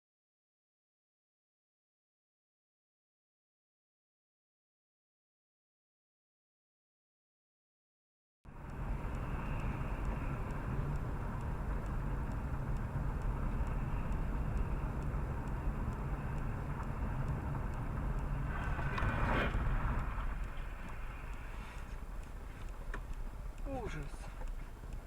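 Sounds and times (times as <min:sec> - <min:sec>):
car engine rumble: 0:08.5 - 0:25.0
road noise: 0:08.5 - 0:25.0.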